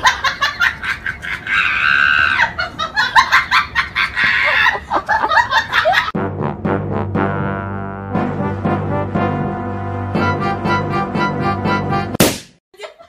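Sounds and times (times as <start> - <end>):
brass music: 6.2 - 12.2.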